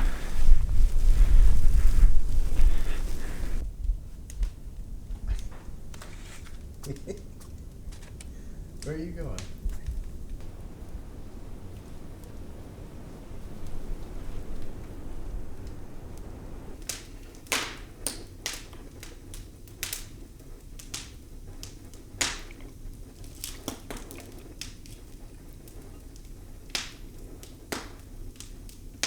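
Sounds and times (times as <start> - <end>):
low rumbling: 0.0 - 6.0, 6.6 - 16.8
sharp pops of fire: 0.0 - 29.0
wood fire crackling: 0.0 - 29.0.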